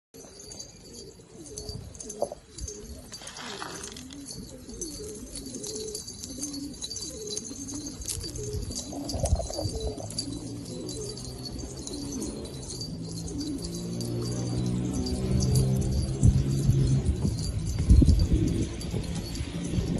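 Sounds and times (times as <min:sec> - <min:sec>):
pigeons cooing: 0:00.2 - 0:19.9.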